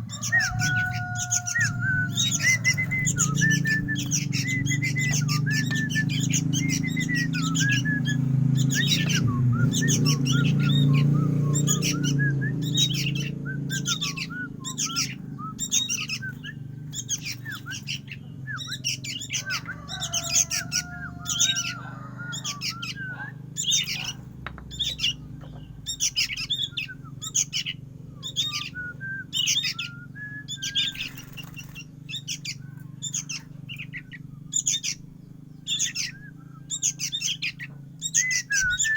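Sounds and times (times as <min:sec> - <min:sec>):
low hum: 0:00.0 - 0:38.9
young bird chirping: 0:00.0 - 0:38.9
wing flutters: 0:30.9 - 0:32.0.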